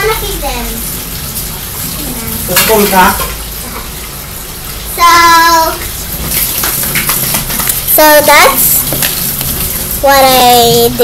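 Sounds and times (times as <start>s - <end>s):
child's voice: 0.0s - 0.9s, 5.0s - 5.8s, 7.9s - 8.8s, 10.0s - 11.0s.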